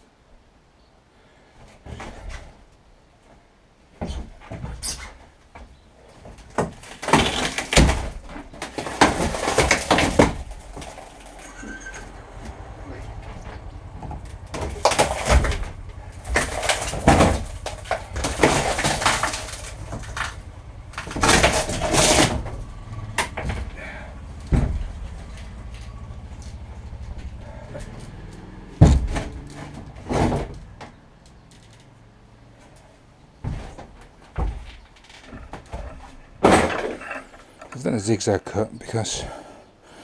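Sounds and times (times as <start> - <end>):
panel scraping and cracking: 6.2 - 26.7, 33.4 - 37.9
knocks: 24.4 - 25.1.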